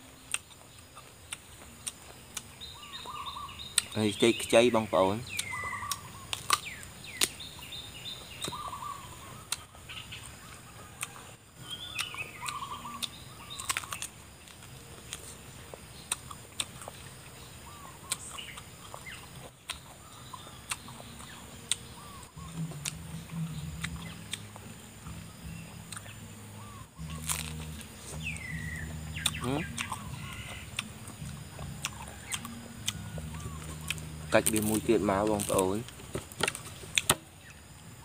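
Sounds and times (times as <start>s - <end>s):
birds calling: 0.0s - 38.0s
chewing and crunching: 0.0s - 38.0s.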